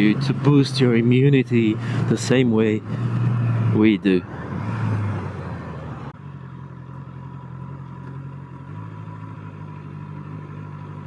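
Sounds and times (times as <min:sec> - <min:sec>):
wind and road noise: 0:00.0 - 0:11.0
motorcycle engine idling: 0:05.6 - 0:11.0.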